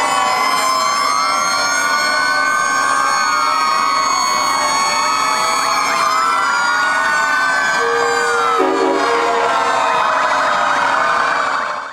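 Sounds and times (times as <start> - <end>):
fire truck sirens wailing: 0.0 - 11.9
steady horn tone: 7.8 - 10.3.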